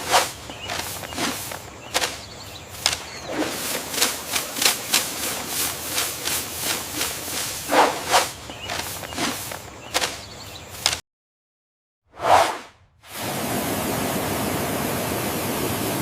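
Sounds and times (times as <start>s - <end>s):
scraping and brushing strokes: 0.0s - 11.0s, 12.2s - 12.7s.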